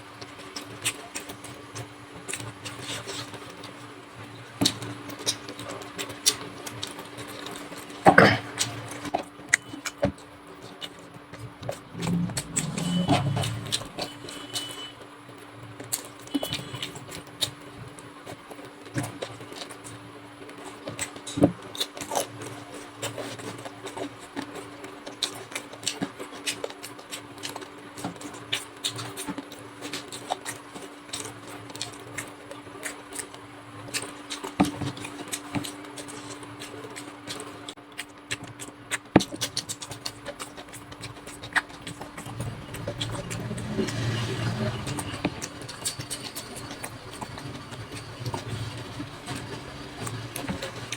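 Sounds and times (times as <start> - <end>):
chewing and lip smacks: 33.9 - 48.5.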